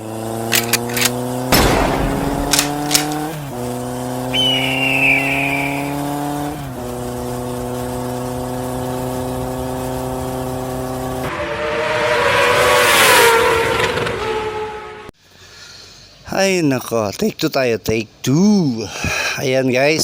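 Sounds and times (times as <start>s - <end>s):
motorcycle engine shifting gears: 0.0s - 14.4s
high whistling tone: 4.2s - 6.2s.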